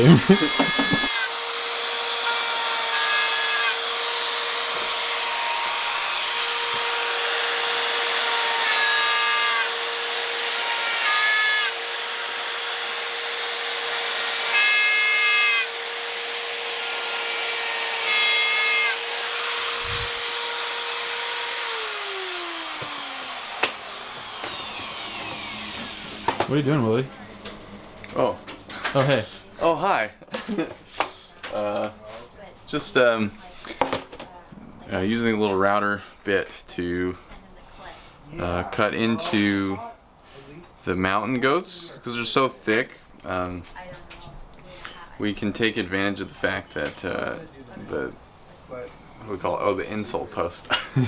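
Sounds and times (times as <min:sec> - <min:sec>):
motor winding down: 0:00.0 - 0:01.4, 0:18.9 - 0:28.5
rotary tool whining: 0:00.0 - 0:02.5, 0:08.0 - 0:28.8
router bit cutting sole: 0:00.0 - 0:28.2.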